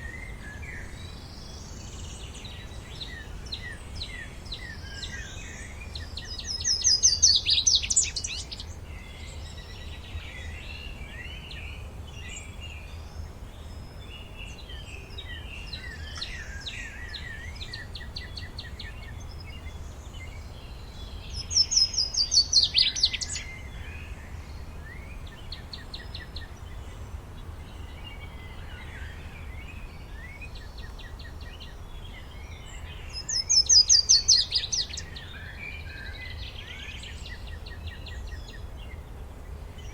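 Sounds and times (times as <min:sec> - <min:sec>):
birds chirping and calling: 0:21.4 - 0:23.6, 0:30.1 - 0:38.6.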